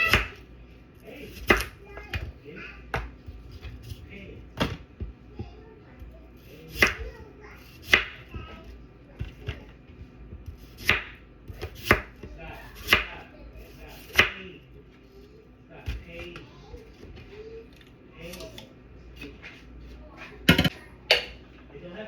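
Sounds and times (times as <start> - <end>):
knife chopping on cutting board: 1.3 - 2.3, 6.0 - 14.4.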